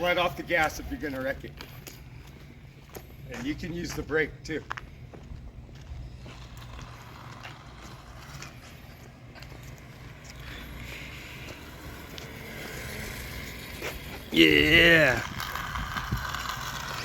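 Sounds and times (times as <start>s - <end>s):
toy dirt bike electric motor: 6.2s - 17.0s
wind rumble on microphone: 14.6s - 17.0s.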